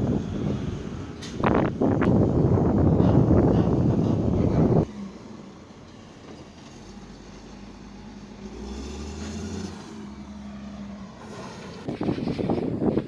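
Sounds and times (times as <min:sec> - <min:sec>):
deep rumble: 0:00.0 - 0:04.9.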